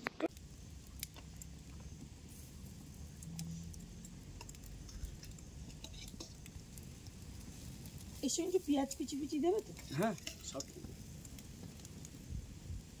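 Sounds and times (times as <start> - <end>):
bonfire crackles: 0.0 - 13.0
wind buffeting microphone: 10.7 - 13.0.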